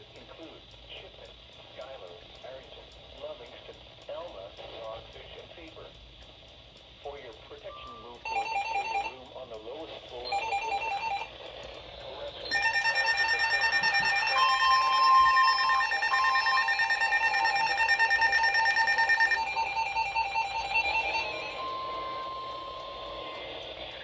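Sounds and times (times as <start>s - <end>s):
rapid two-pitch alert beeping: 7.7s - 9.2s, 10.2s - 11.3s, 12.4s - 24.0s.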